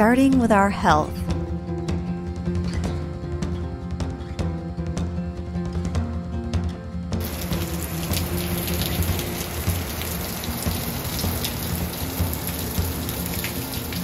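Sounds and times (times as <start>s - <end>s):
background music: 0.0s - 14.0s
heavy rain pouring: 7.2s - 14.0s.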